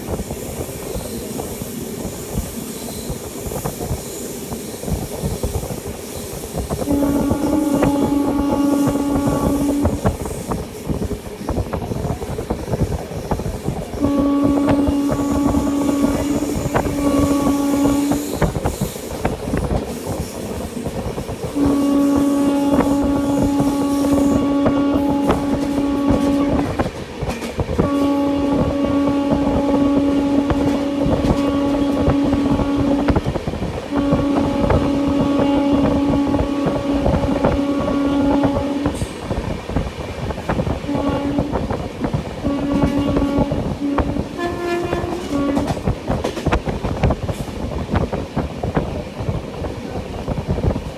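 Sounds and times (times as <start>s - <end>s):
train wheels clattering on track: 0.0s - 50.9s
train horn blasts: 6.6s - 10.8s, 13.6s - 39.5s, 40.6s - 47.0s.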